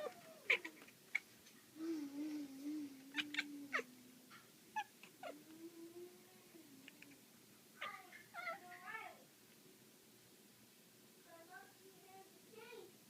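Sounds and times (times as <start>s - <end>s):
cat calling and chirping: 0.0s - 1.3s, 3.0s - 3.9s.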